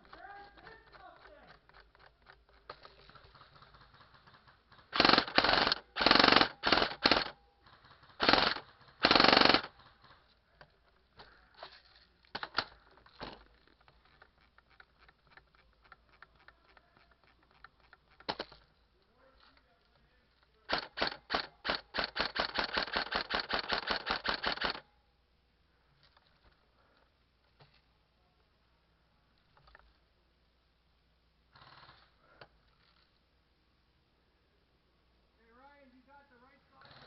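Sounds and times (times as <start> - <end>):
airsoft gun full-auto bursts: 3.1 - 10.2, 20.7 - 24.8.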